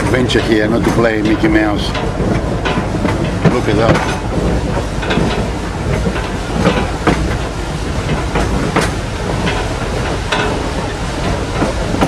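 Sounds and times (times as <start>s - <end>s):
train rumbling on track: 0.0s - 12.0s
wheels clanking and clicking: 0.0s - 12.0s.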